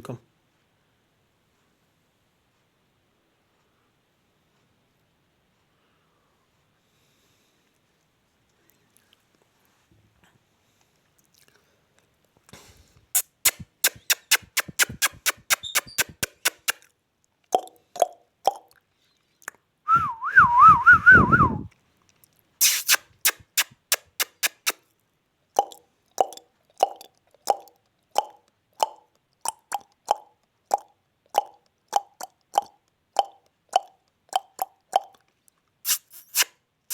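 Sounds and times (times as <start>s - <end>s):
parrot chirps: 13.2s - 16.8s, 22.6s - 24.8s, 35.8s - 36.5s
parrot short repeated calls: 13.2s - 16.8s, 22.6s - 24.8s
parrot clicking: 13.2s - 16.9s, 22.6s - 24.8s, 25.6s - 35.2s
parrot warbling whistle: 13.4s - 16.3s.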